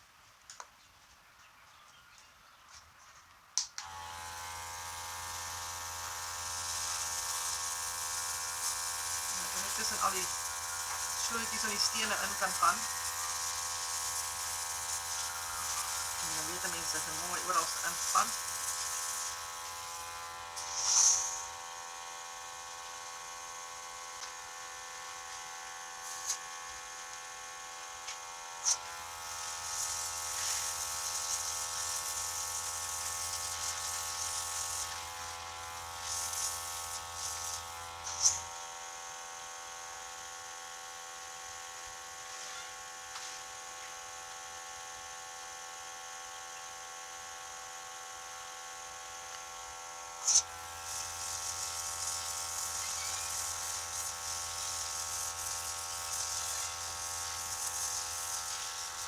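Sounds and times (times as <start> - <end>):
compressor buzzing hum: 3.8 - 59.0
airbrush spraying hiss: 6.5 - 21.7, 25.0 - 26.4, 28.6 - 38.5, 50.2 - 59.0.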